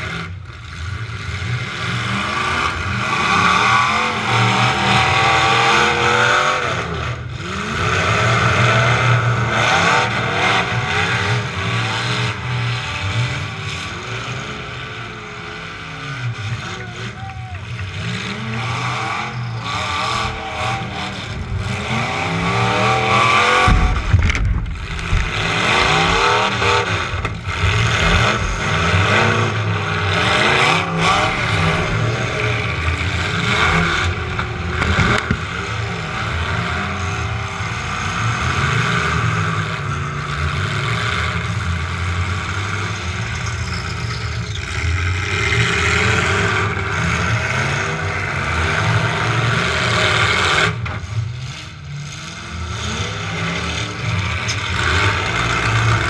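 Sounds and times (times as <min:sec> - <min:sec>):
truck engine revving: 0:00.0 - 0:56.0
collision knocks and thumps: 0:23.5 - 0:28.7.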